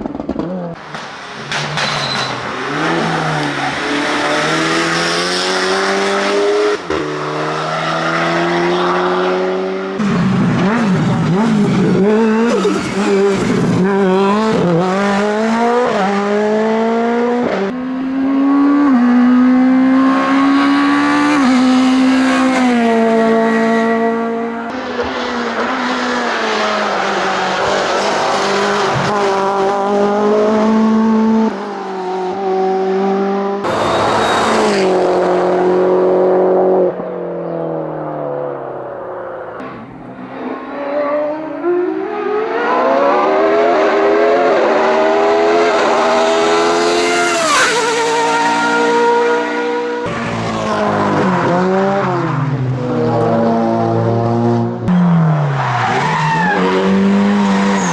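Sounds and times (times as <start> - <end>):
race car engines passing: 0.0 - 57.9
tyre squeal: 1.2 - 4.0, 12.0 - 13.5, 33.7 - 35.2.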